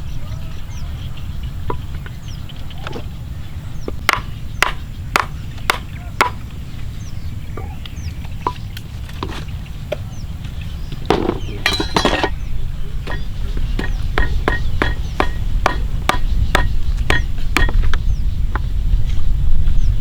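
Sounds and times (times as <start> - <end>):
steady low rumble: 0.0 - 20.0
knife chopping on wooden board: 4.0 - 6.4, 13.1 - 17.9
scraping rustle: 8.9 - 9.7.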